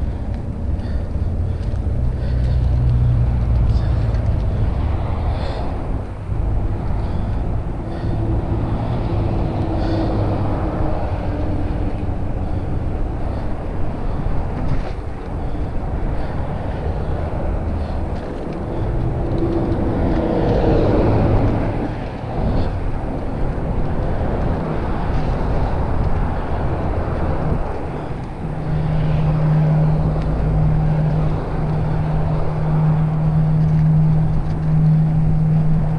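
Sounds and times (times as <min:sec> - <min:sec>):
bike tyre rumble: 0:00.0 - 0:35.9
wind buffeting microphone: 0:00.0 - 0:35.9.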